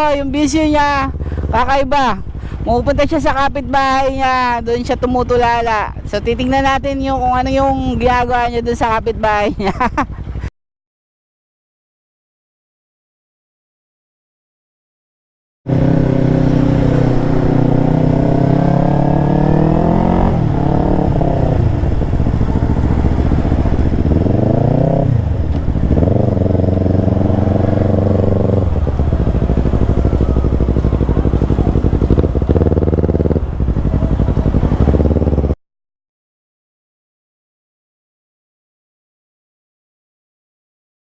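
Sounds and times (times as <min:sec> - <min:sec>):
motorcycle engine accelerating: 0:00.0 - 0:10.5, 0:15.7 - 0:35.6.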